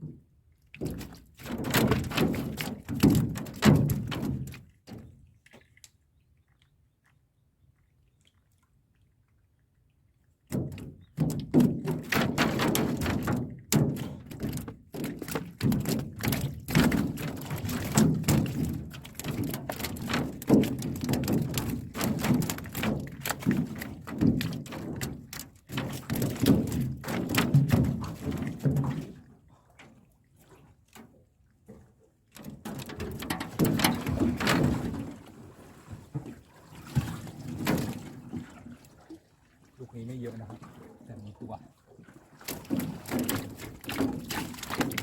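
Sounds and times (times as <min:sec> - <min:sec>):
hollow thunks and knocks: 0:00.8 - 0:05.2, 0:10.5 - 0:29.2, 0:32.4 - 0:35.2, 0:42.4 - 0:45.0.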